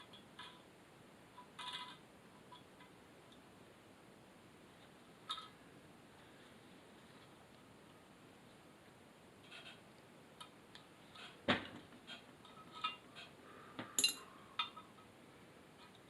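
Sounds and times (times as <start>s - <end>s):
small metal parts clinking: 14.0s - 14.8s.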